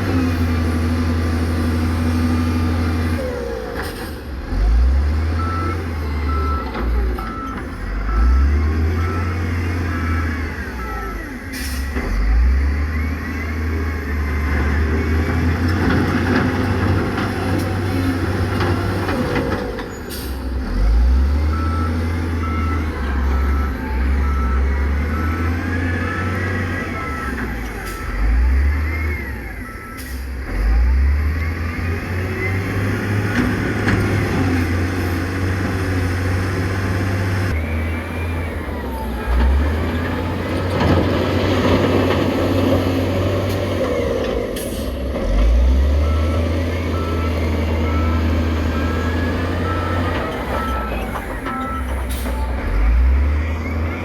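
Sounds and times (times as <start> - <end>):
diesel construction machinery working: 0.0 - 54.0
reversing alarm beeping: 5.4 - 15.6, 19.9 - 35.4, 44.6 - 54.0.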